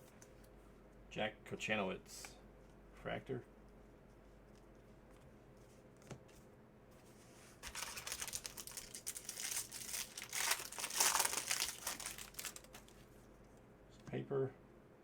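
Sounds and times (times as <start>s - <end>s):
foil wrapper tearing and crinkling: 7.6s - 13.0s.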